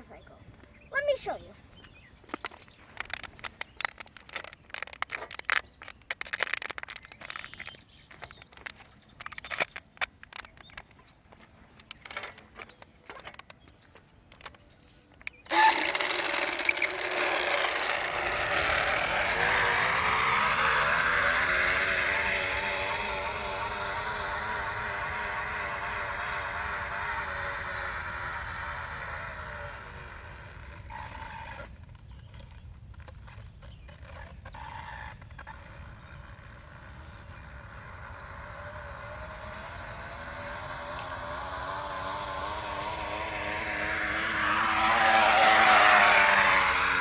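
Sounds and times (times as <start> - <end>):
plastic bottle rattling in bicycle spokes: 2.4 - 11.1, 11.7 - 47.0
wavering buzz of spokes flicking bottle: 15.3 - 47.0.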